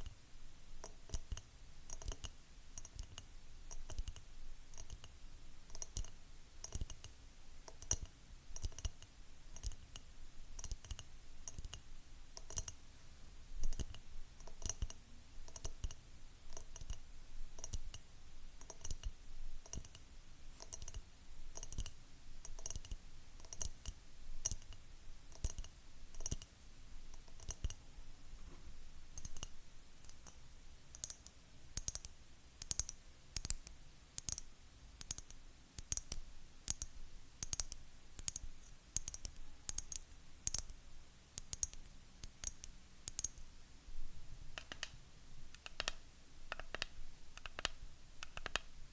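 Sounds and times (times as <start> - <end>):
fingernails tapping on hard objects: 45.6 - 48.6.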